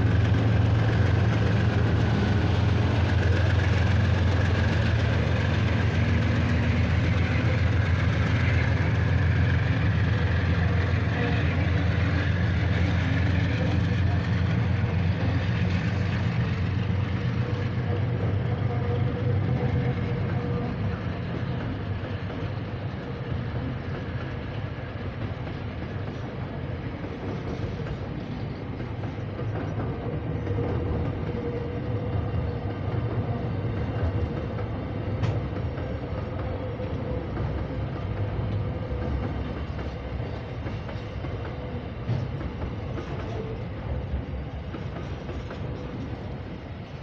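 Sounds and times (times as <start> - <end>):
diesel locomotive rumble: 0.0 - 47.0
train wagons rolling past: 0.0 - 47.0.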